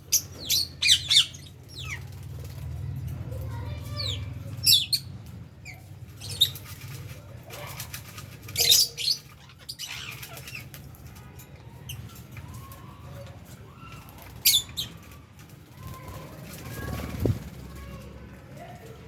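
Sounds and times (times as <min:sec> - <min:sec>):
parrots chattering: 0:00.1 - 0:02.4, 0:03.5 - 0:12.3, 0:14.0 - 0:15.0.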